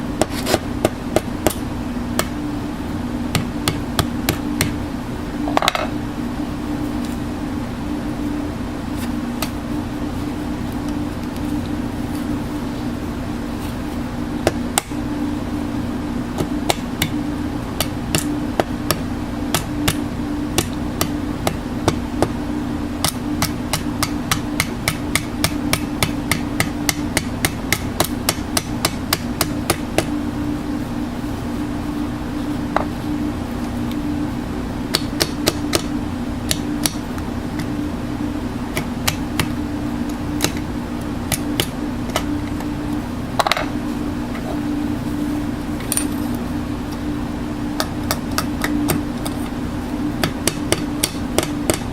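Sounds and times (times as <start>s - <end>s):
machine hum: 0.0s - 51.9s.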